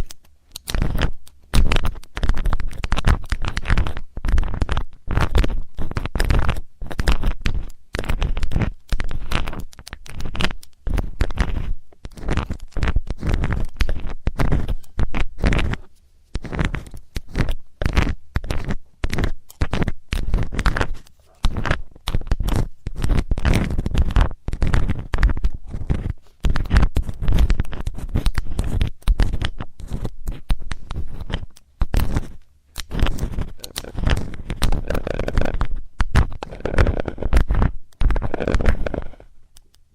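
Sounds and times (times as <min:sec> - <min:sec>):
metal tool scraping in microphone ear: 0:10.2 - 0:39.3.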